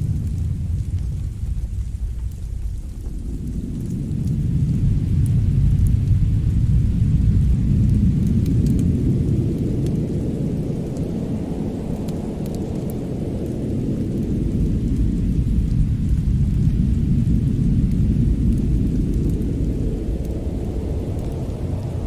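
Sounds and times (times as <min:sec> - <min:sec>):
deep steady rumble: 0:00.0 - 0:22.0
faint fire crackles: 0:00.0 - 0:22.0.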